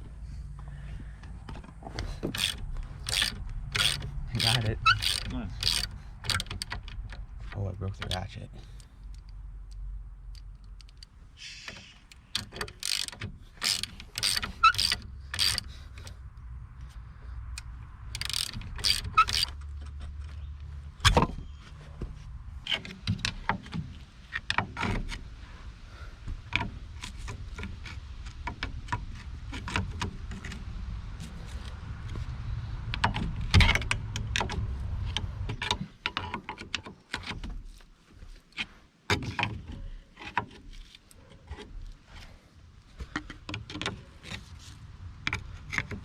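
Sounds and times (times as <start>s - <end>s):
hand tools clanking on metal: 2.3s - 6.8s.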